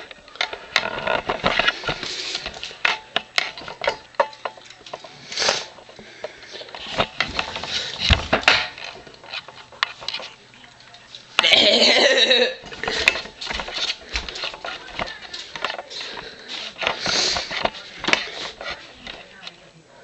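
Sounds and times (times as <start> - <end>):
cat crunching food: 0.0 - 11.9, 12.6 - 19.7.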